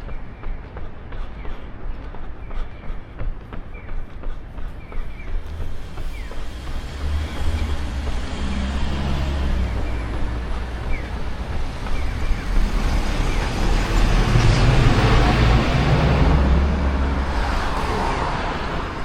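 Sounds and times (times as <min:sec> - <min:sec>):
vehicles passing with low rumble: 0:04.5 - 0:19.0.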